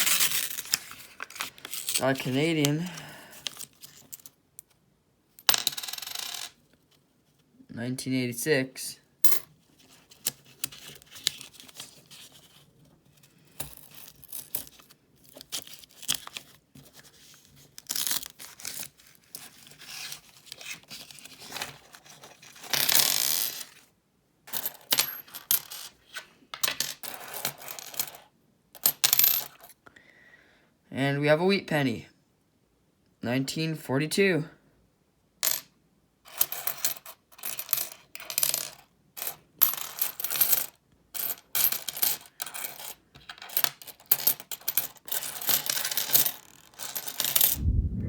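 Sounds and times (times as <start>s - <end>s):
paper rustling: 0.0s - 2.0s
coins clinking and sliding: 5.4s - 6.6s, 22.5s - 23.7s, 24.5s - 26.0s, 26.6s - 29.7s, 35.4s - 35.6s, 36.3s - 47.6s.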